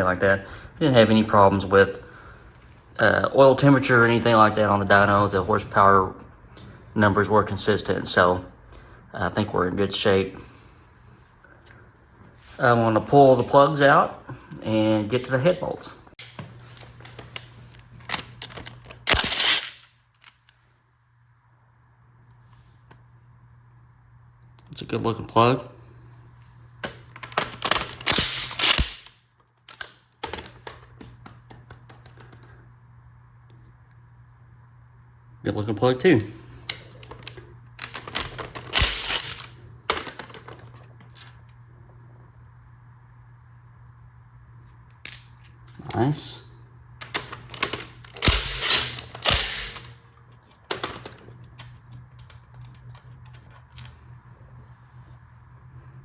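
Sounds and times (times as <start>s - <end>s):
ratchet wrench clicking: 48.2s - 49.8s.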